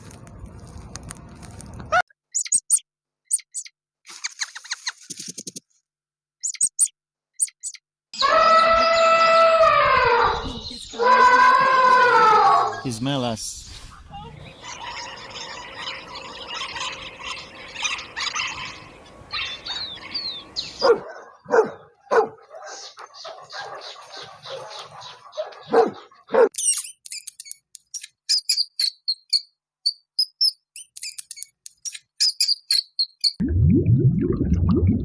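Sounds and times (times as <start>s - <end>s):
dog barking: 16.5s - 20.2s, 20.8s - 26.5s.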